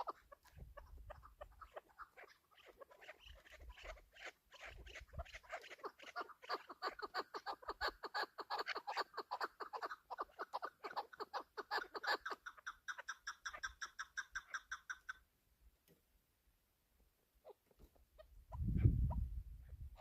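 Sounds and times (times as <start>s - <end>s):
partridge calling: 0.0s - 15.3s.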